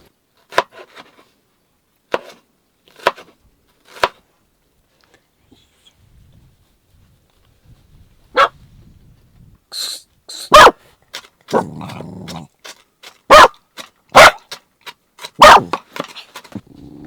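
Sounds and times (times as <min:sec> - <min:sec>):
dog barking: 0:08.3 - 0:08.6, 0:10.5 - 0:10.8, 0:11.5 - 0:12.0, 0:13.3 - 0:14.5, 0:15.4 - 0:15.8
dog growling: 0:11.5 - 0:12.5, 0:15.4 - 0:15.8, 0:16.6 - 0:17.0.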